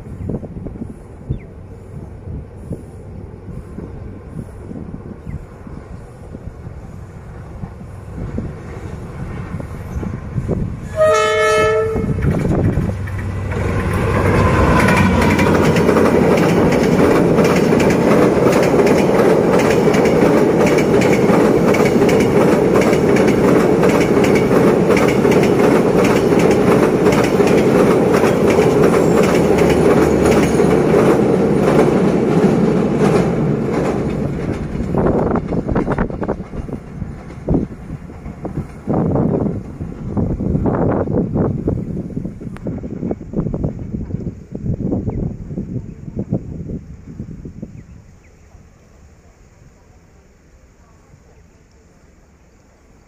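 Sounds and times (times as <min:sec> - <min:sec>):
train engine and wheels rumbling: 0:00.0 - 0:53.0
clickety-clack over rails: 0:07.5 - 0:41.8
locomotive horn: 0:10.8 - 0:12.3.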